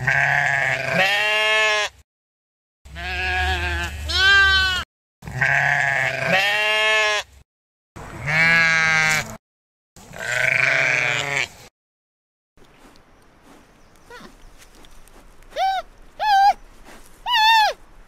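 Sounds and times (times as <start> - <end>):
sheep bleating: 0.0 - 1.9, 2.9 - 7.3, 8.2 - 9.4, 10.1 - 11.6.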